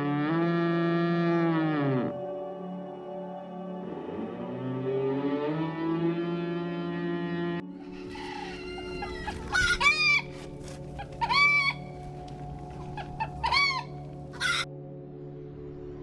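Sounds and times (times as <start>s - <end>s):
steady low drone: 0.0s - 16.0s
chicken squawking and clucking: 7.7s - 14.7s.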